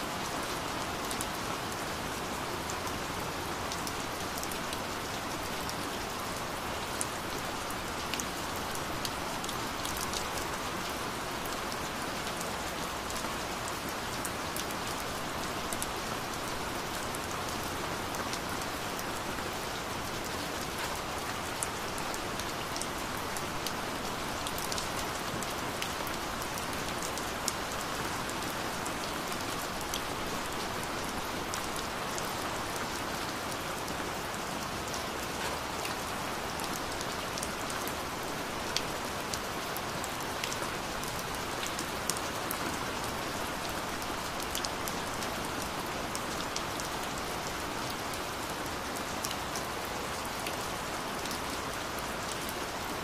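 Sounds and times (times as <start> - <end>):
gentle rain hiss: 0.0 - 53.0.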